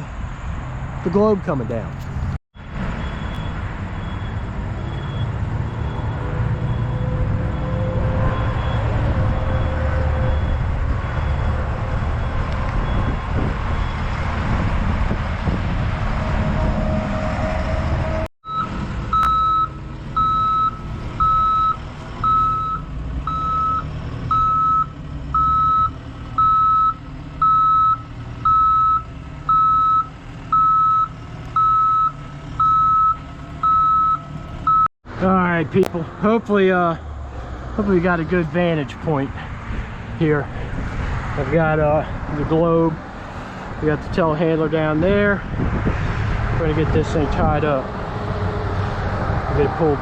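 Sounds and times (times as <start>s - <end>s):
reversing alarm beeping: 3.0s - 14.1s, 18.4s - 34.9s.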